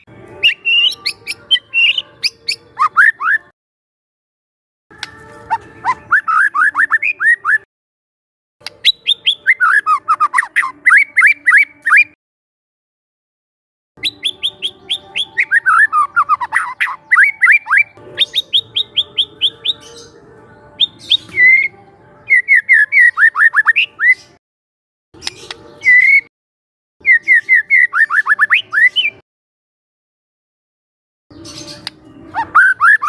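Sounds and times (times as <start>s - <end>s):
bird singing whistled notes: 0.0s - 3.5s, 5.0s - 7.6s, 8.7s - 12.2s, 14.0s - 20.2s, 20.8s - 24.4s, 25.2s - 26.3s, 27.0s - 29.2s, 31.3s - 33.0s.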